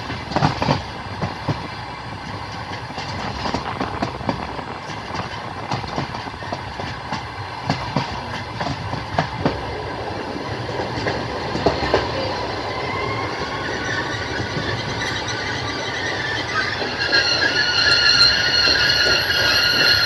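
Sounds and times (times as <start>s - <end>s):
train wheels rumbling on rails: 0.0s - 20.0s
high wheel squeal: 11.2s - 20.0s.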